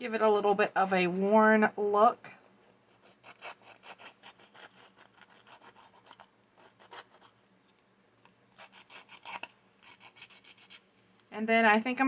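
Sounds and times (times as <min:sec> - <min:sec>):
distressing tool scraping card edges: 0:02.9 - 0:07.4, 0:08.6 - 0:10.9.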